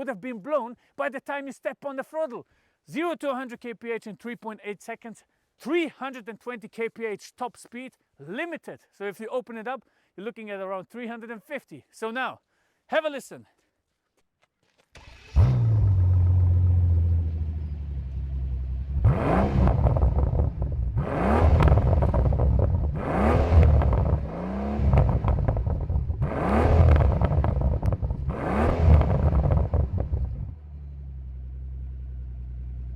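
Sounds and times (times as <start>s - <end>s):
engine revving: 15.0s - 32.1s
car engine starting and idling: 15.0s - 32.9s.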